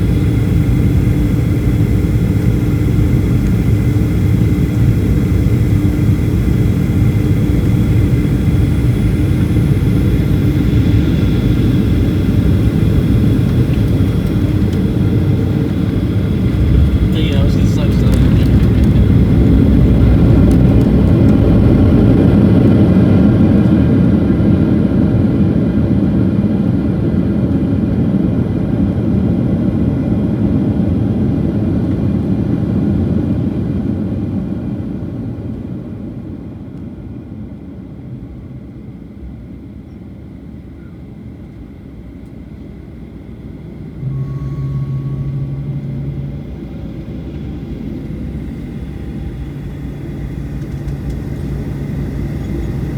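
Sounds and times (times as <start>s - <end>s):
jet engines rumbling: 0.0s - 24.6s, 43.0s - 52.9s
steady low hum: 0.0s - 24.6s, 40.8s - 52.9s.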